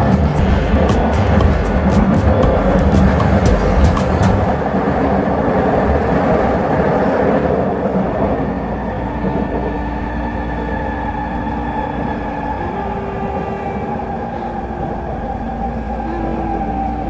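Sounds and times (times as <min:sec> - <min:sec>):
train wheels rumbling on rails: 0:00.0 - 0:09.3
multi-tone whine: 0:00.0 - 0:17.0.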